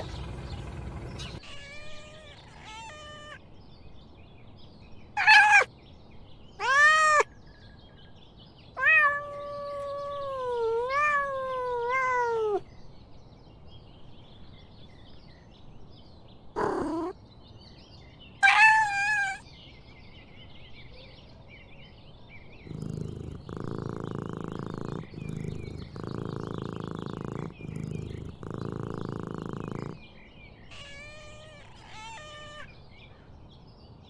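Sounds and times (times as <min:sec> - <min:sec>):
cat meowing: 0:00.0 - 0:03.4, 0:05.2 - 0:05.7, 0:06.6 - 0:07.3, 0:08.8 - 0:12.6, 0:16.6 - 0:17.2, 0:18.4 - 0:19.4, 0:22.7 - 0:30.0, 0:30.7 - 0:32.7.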